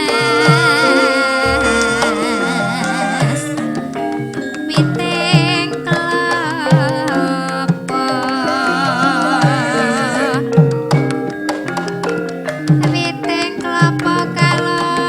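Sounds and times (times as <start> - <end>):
metallophone and gong tones: 0.0 - 4.6
hand drum strokes: 0.0 - 7.1
person singing with vibrato: 0.0 - 10.8.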